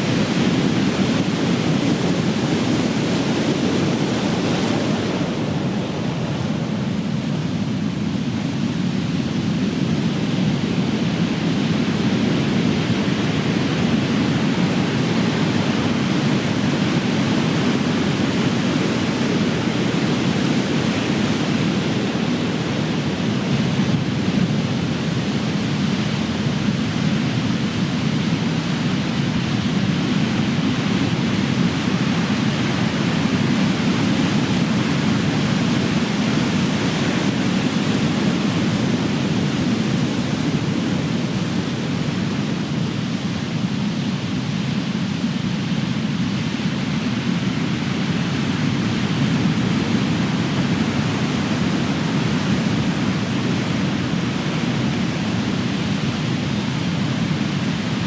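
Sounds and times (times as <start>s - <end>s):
ocean waves breaking: 0.0s - 9.6s, 31.2s - 58.0s.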